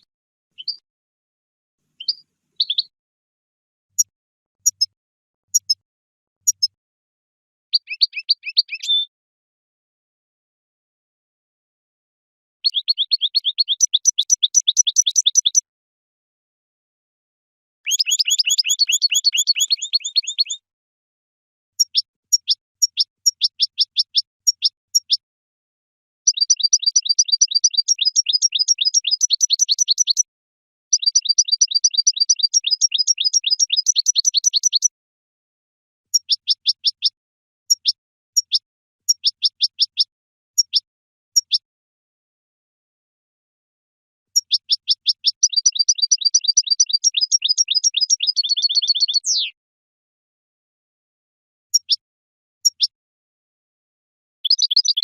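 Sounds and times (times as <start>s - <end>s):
bird twittering song: 0.0s - 0.8s, 2.0s - 2.9s, 4.0s - 5.8s, 6.4s - 6.8s, 7.7s - 9.1s, 12.6s - 15.6s, 17.9s - 20.6s, 21.8s - 25.2s, 26.3s - 30.3s, 30.9s - 34.9s, 36.1s - 41.7s, 44.3s - 49.6s, 51.7s - 53.0s, 54.4s - 55.0s.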